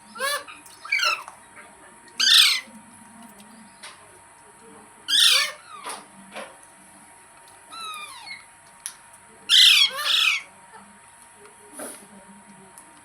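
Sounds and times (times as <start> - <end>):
parakeet squawking: 0.0 - 1.3, 2.2 - 2.7, 5.1 - 6.0, 7.7 - 8.5, 9.5 - 10.5.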